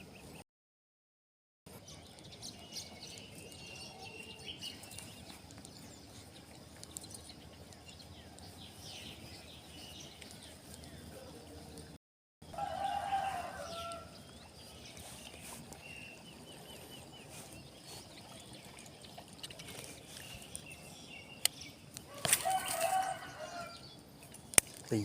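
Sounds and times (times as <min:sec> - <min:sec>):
small birds chirping: 0:01.7 - 0:25.0
rooster crowing: 0:12.5 - 0:14.2, 0:22.1 - 0:23.8
sharp clicks: 0:24.4 - 0:24.8.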